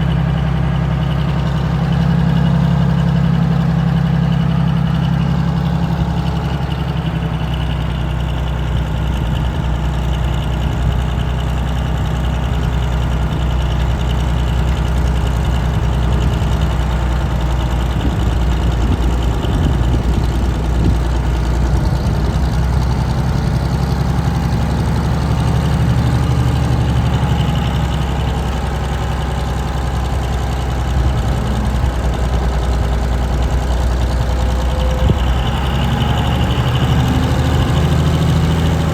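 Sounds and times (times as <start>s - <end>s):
truck crane engine idling: 0.0s - 38.9s.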